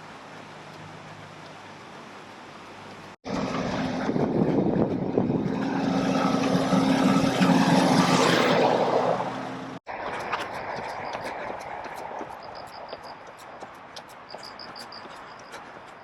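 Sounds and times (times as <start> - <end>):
outdoor background noise: 0.0 - 16.0
vehicle mechanical drone: 3.2 - 12.0.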